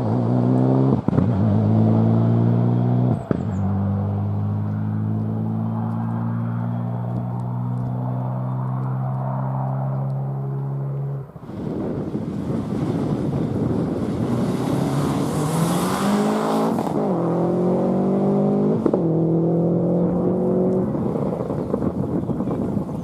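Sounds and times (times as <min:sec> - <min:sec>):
rally car engine accelerating: 0:00.0 - 0:08.9, 0:13.7 - 0:22.0
tyre and road noise: 0:00.0 - 0:23.0.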